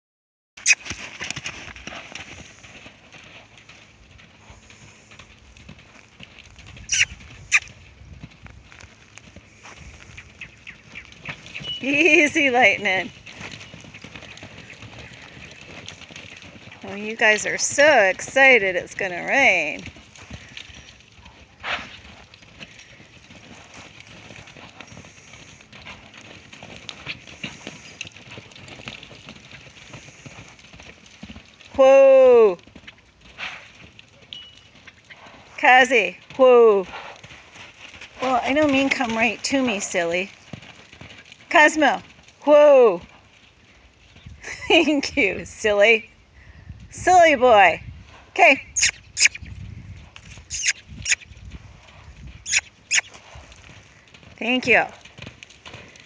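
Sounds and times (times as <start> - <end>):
horse hooves knocking on ground: 0.6 - 4.3, 5.0 - 33.2, 36.8 - 42.4.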